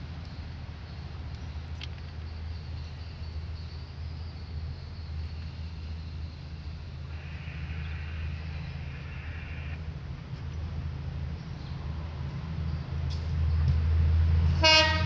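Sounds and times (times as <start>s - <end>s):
train rumbling: 0.0s - 15.0s
high hiss: 5.1s - 9.8s.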